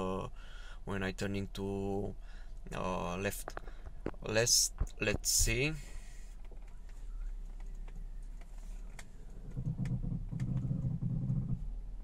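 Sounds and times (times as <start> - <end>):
car engine hum: 2.0 - 12.0
steering clicks: 6.4 - 12.0
low groaning rumble: 6.6 - 12.0.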